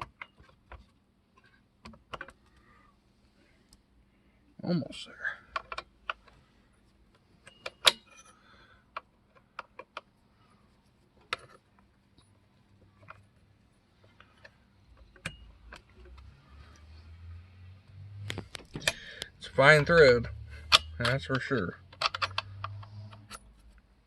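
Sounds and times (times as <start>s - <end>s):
sharp metal clicks: 7.4s - 8.3s, 18.2s - 23.5s.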